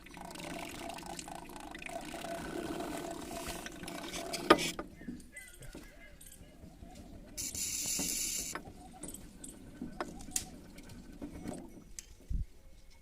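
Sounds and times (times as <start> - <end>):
metal tools clinking: 4.6 - 6.6.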